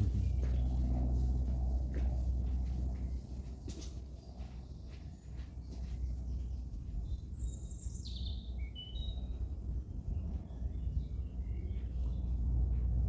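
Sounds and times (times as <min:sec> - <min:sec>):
songbird singing: 0:00.0 - 0:00.8
low outdoor rumble: 0:00.0 - 0:03.6.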